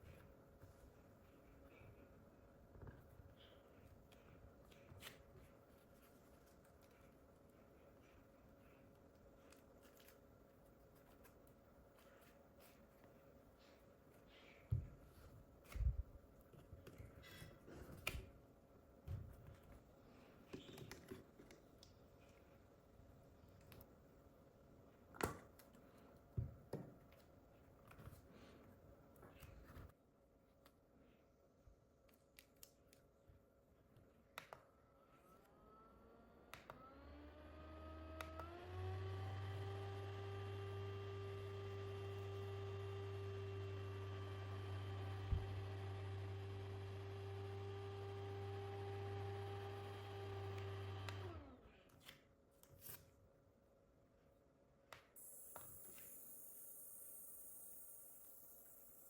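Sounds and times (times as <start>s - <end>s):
small fan motor whine: 35.0s - 51.8s, 55.2s - 59.0s.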